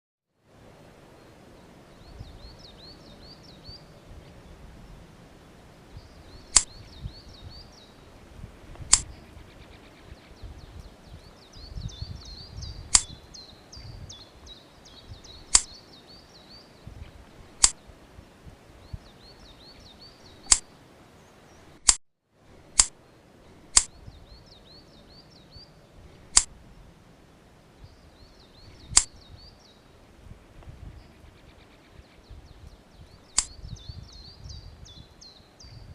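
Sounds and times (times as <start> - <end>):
bird chirping: 1.1 - 21.9, 22.6 - 30.1, 30.8 - 35.9
pruning shears snipping: 6.5 - 6.7, 8.8 - 9.1, 12.9 - 13.2, 15.5 - 15.7, 20.4 - 20.7, 22.7 - 23.0, 23.7 - 23.9, 26.3 - 26.5, 28.9 - 29.1.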